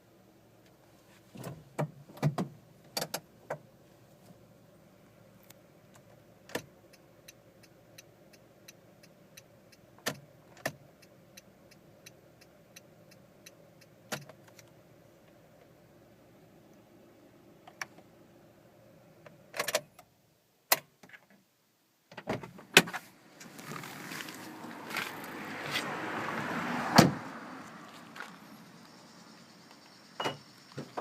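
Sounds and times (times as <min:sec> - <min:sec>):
car door clicks and clunks: 0:01.3 - 0:03.6, 0:10.0 - 0:10.8, 0:14.1 - 0:14.7, 0:19.2 - 0:20.1, 0:22.1 - 0:23.0, 0:26.9 - 0:27.2
rustling: 0:22.9 - 0:25.9
car engine idling: 0:23.1 - 0:31.0
car door slamming: 0:26.8 - 0:27.3.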